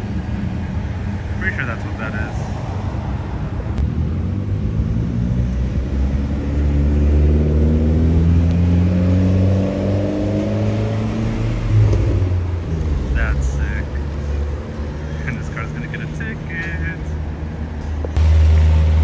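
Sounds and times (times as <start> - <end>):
car engine accelerating: 0.0 - 16.0, 18.0 - 19.0.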